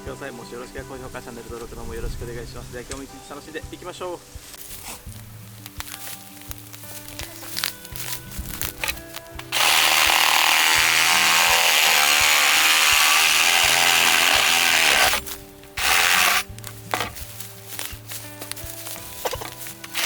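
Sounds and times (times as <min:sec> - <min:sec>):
electric chainsaw cutting bamboo: 0:04.3 - 0:20.0.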